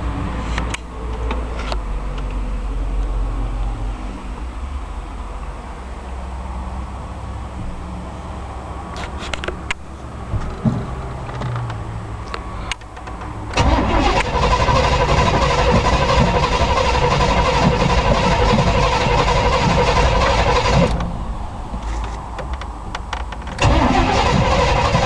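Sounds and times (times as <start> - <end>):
engine cranking by starter: 13.1 - 21.1, 23.5 - 25.0.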